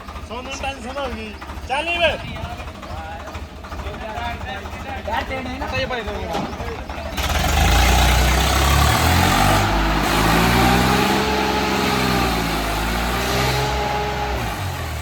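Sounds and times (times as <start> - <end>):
tractor diesel engine revving: 0.0 - 15.0.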